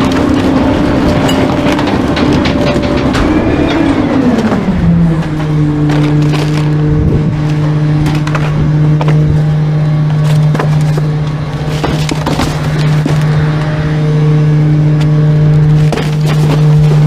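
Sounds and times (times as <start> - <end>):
knocks and cracks: 0.0 - 3.9, 10.2 - 13.4, 15.8 - 17.0
truck engine and machinery: 0.0 - 17.0.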